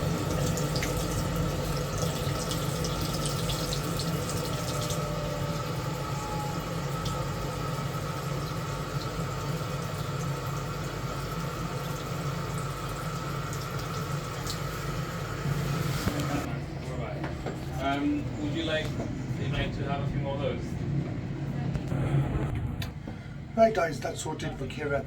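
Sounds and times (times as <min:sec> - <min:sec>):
water running from tap: 0:00.0 - 0:16.5
low steady hum: 0:00.0 - 0:25.0.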